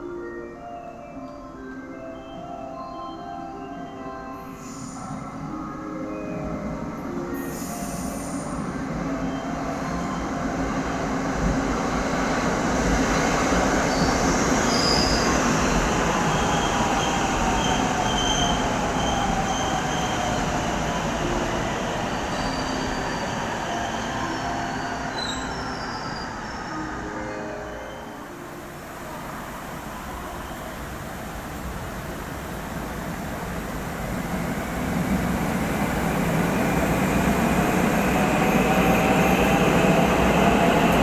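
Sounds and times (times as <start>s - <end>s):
train passing: 4.3s - 41.0s
high wheel squeal: 22.1s - 28.2s.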